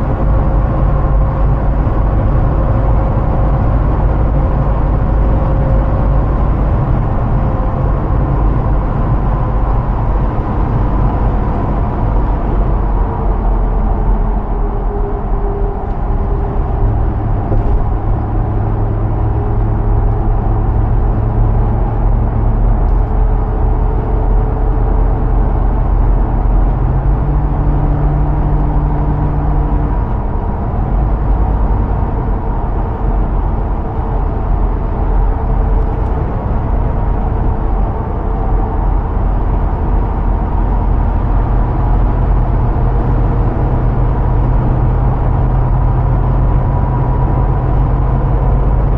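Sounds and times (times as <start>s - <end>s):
road noise: 0.0s - 48.9s
vehicle engine running: 0.0s - 48.9s.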